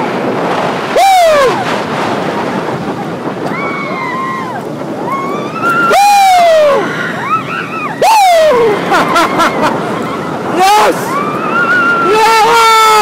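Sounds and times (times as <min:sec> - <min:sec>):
wind rushing past microphone: 0:00.0 - 0:13.0
rider yelling woo: 0:00.9 - 0:01.6, 0:03.5 - 0:13.0.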